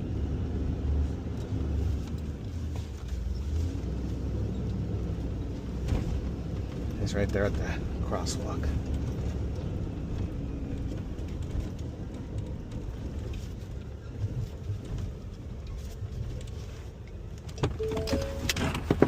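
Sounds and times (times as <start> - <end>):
truck engine rumbling: 0.0 - 19.0
brief tones: 17.8 - 18.8.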